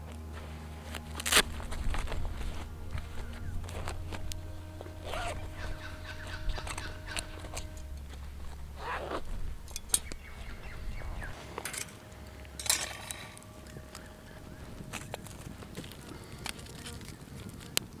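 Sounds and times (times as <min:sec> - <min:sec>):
scraping sweeps: 0:00.0 - 0:16.4
low hum: 0:00.0 - 0:17.7
gear rustling: 0:00.0 - 0:18.0.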